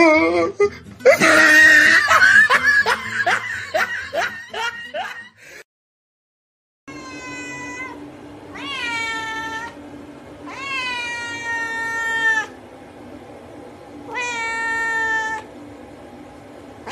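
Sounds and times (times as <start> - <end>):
cat meowing: 6.9 - 9.8, 10.5 - 12.6, 14.1 - 15.5.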